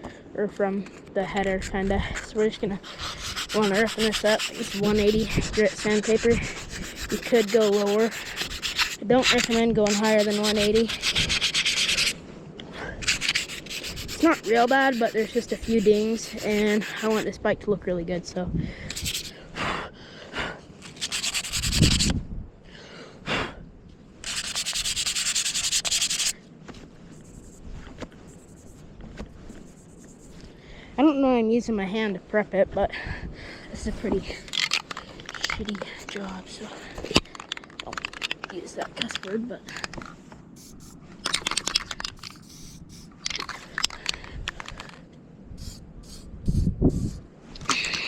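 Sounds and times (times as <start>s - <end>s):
sandpaper scraping metal: 2.4s - 12.2s, 13.0s - 17.3s, 18.9s - 19.3s, 20.8s - 22.1s, 24.2s - 26.4s, 27.1s - 27.6s, 29.5s - 30.4s, 40.6s - 43.1s.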